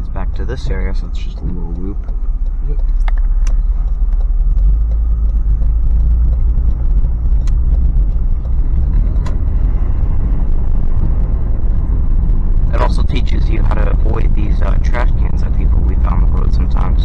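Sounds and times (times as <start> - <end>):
engine and tyres rumbling: 0.0 - 17.0
faint clicks: 1.0 - 9.5.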